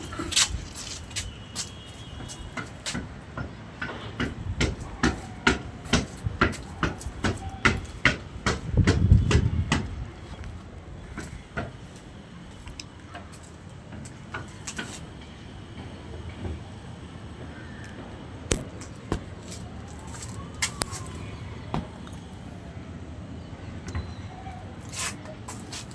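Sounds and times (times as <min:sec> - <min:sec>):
knocks and clicks of hand work: 0:02.6 - 0:10.0.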